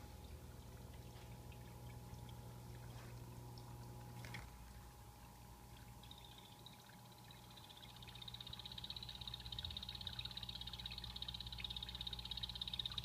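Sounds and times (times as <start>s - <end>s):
low electrical hum: 0.0s - 13.0s
small waterfall trickling: 0.0s - 13.0s
frog buzzing trill: 7.4s - 13.0s.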